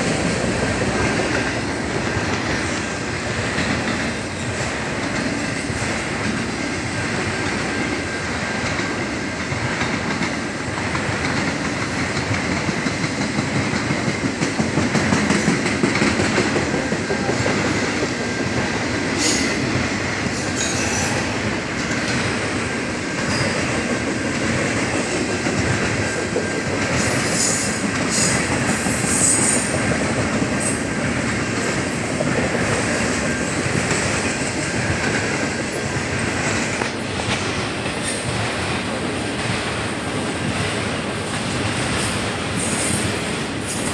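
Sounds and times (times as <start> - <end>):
train wheels rumbling on rail: 0.0 - 43.9
train wheels squeaking: 19.2 - 21.4, 23.2 - 23.9, 26.4 - 29.9, 40.2 - 43.9.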